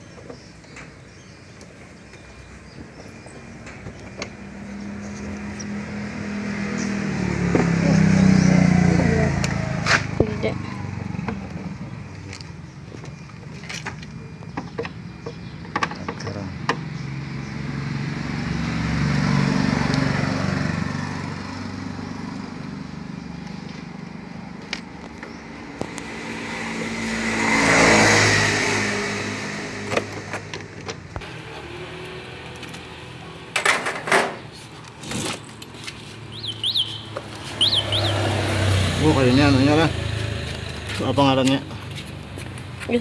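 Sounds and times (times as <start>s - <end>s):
motor vehicles passing by: 0.0s - 43.0s.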